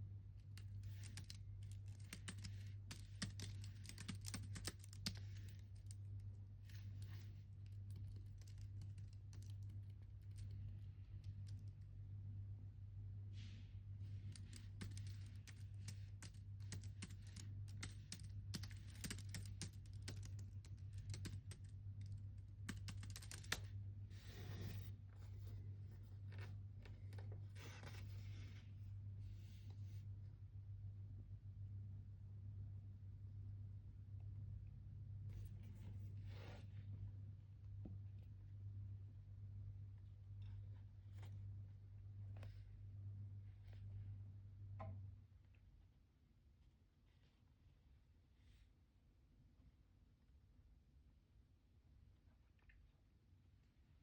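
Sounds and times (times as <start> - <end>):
computer keyboard typing: 0.5 - 6.0, 6.9 - 10.5, 14.3 - 23.7.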